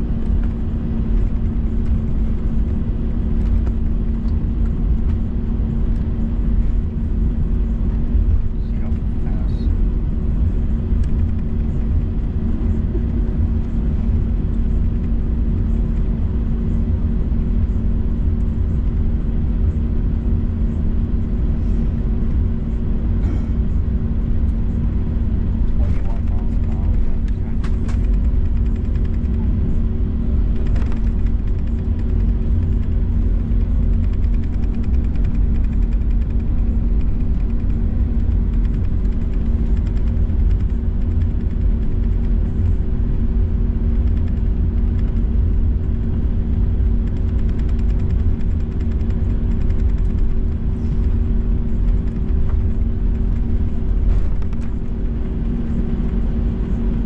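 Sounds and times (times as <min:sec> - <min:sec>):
airplane cabin low rumble: 0:00.0 - 0:57.0
steady hums: 0:00.0 - 0:57.0.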